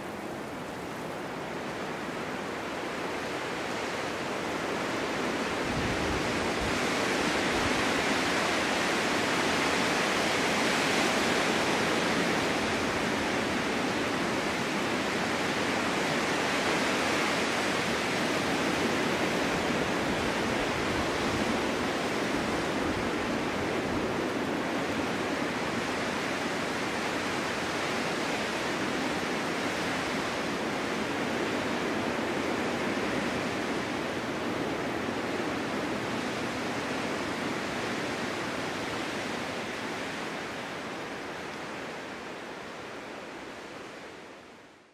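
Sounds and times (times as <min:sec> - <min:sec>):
snowstorm wind blowing: 0:00.0 - 0:44.9.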